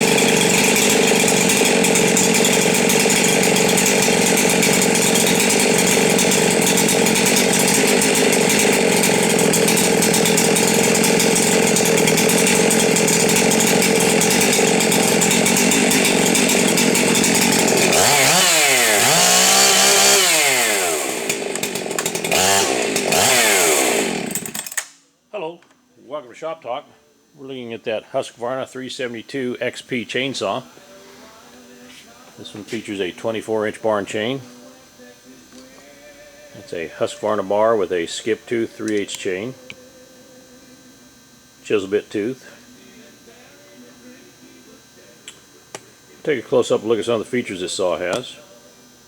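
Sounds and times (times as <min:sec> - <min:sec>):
chainsaw revving: 0:00.0 - 0:24.9, 0:31.6 - 0:39.8.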